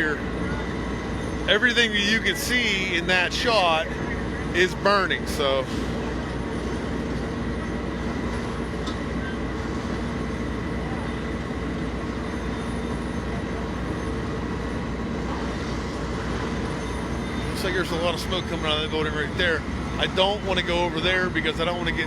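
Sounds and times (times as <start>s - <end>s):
large engine droning: 0.0s - 22.0s.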